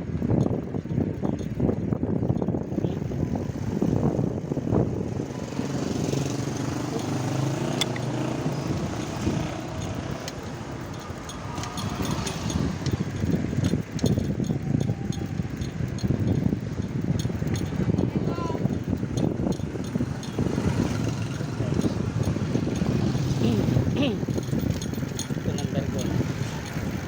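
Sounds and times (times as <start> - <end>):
wind rumble on microphone: 0.0 - 27.0
vehicle engine running: 2.5 - 27.0.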